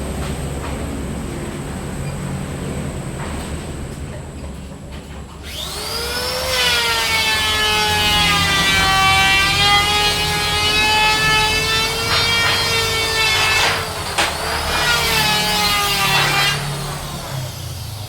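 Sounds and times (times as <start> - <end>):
power saw cutting wood: 5.4 - 18.0.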